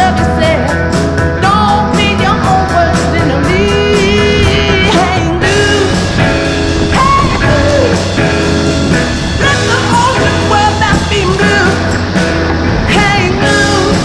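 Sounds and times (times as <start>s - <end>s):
person singing: 0.0s - 8.6s, 9.3s - 14.0s
electric guitar: 0.0s - 14.0s
steady bass line: 0.0s - 14.0s.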